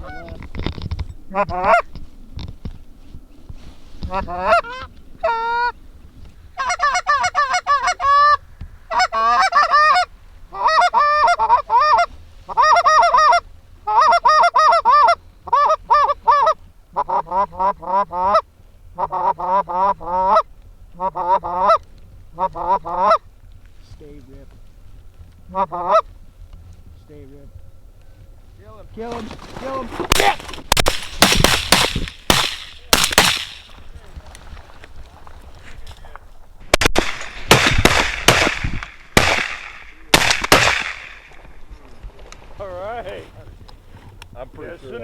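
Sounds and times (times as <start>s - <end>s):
goose honking: 0.0s - 0.4s, 1.3s - 1.9s, 4.0s - 5.8s, 6.6s - 23.2s, 25.5s - 26.1s.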